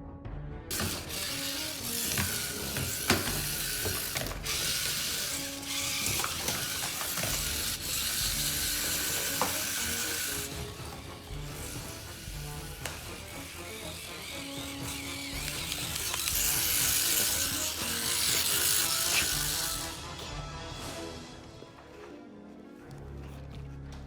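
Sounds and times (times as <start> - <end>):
toy gear mechanism rattling: 0.7 - 20.2.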